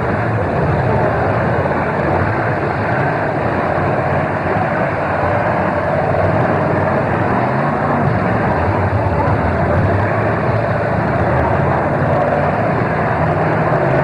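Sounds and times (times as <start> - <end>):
car engines running: 0.0 - 14.0.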